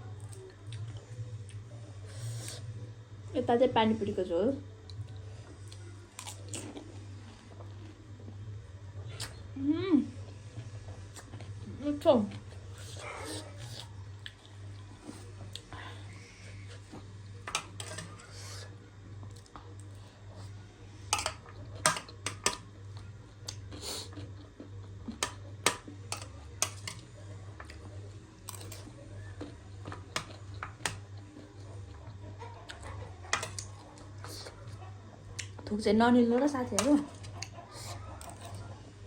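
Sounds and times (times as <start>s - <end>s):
crunchy shells cracking and chewing: 5.7s - 6.9s, 21.2s - 35.7s, 37.1s - 38.7s.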